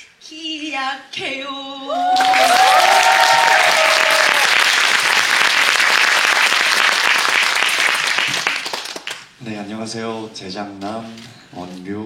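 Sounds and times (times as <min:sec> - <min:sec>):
audience clapping loudly: 0:02.1 - 0:09.4.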